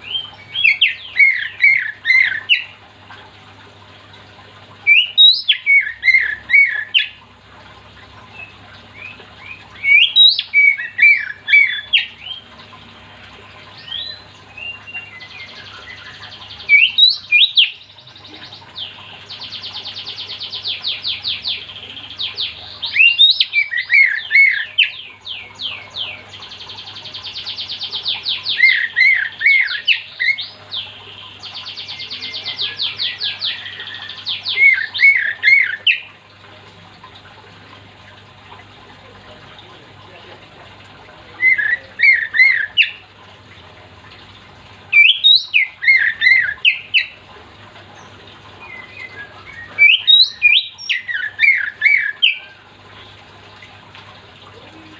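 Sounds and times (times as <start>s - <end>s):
bird singing whistles and trills: 0.0s - 2.7s, 4.9s - 7.2s, 8.3s - 12.5s, 13.8s - 36.1s, 45.0s - 47.2s, 48.6s - 52.5s.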